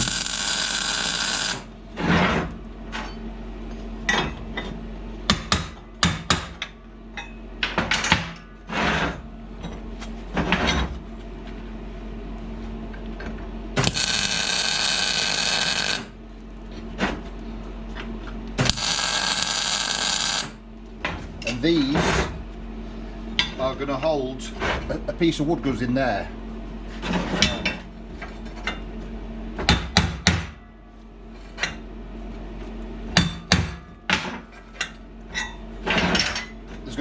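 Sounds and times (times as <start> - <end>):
welder crackling hiss: 0.0 - 1.7, 13.8 - 16.2, 18.6 - 20.6
steady low hum: 0.0 - 7.7, 8.4 - 27.2.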